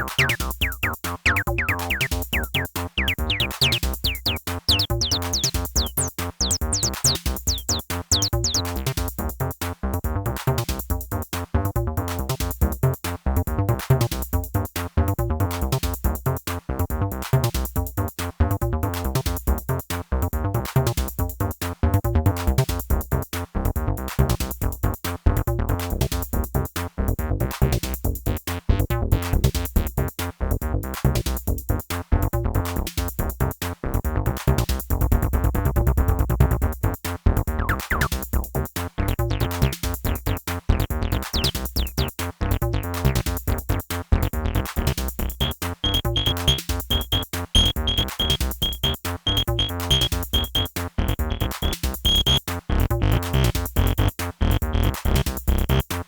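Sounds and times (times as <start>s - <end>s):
synthesizer bass lines: 0.0s - 8.8s, 37.5s - 43.2s, 44.3s - 54.9s
drum machine pattern: 0.0s - 8.9s, 37.5s - 54.8s.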